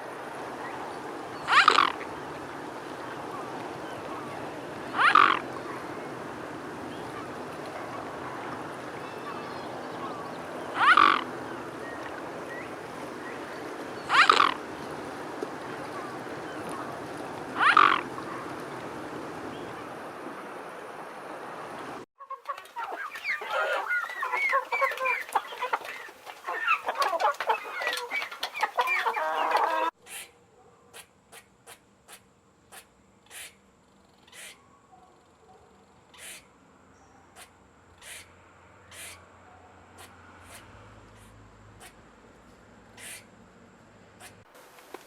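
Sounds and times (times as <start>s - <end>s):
chickens clucking: 1.4s - 19.2s, 22.2s - 30.3s.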